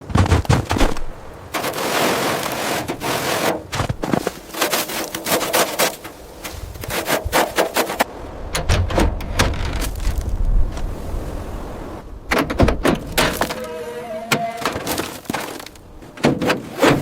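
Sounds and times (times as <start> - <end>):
steady scraping: 0.0 - 8.1.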